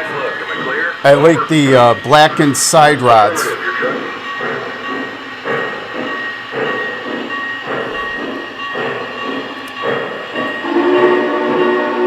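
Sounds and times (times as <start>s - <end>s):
model train steam chuffing: 0.0s - 12.0s.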